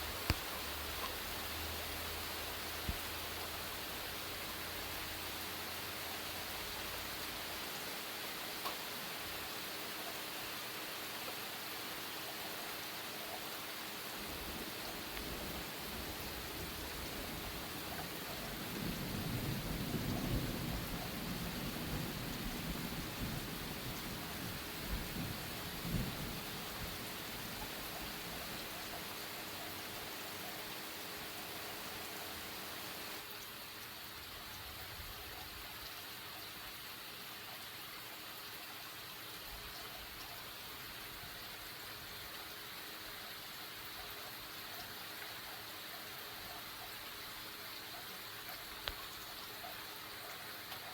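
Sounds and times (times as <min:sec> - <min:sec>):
steady rain: 0:00.0 - 0:50.9
low rumble of thunder: 0:14.2 - 0:28.9.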